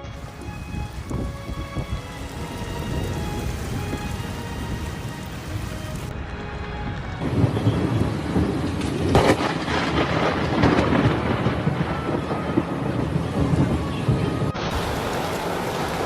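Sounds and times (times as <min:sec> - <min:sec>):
heavy rain: 0:00.0 - 0:16.0
thunder rumbling: 0:00.0 - 0:16.0
loud thunder clap: 0:06.9 - 0:16.0.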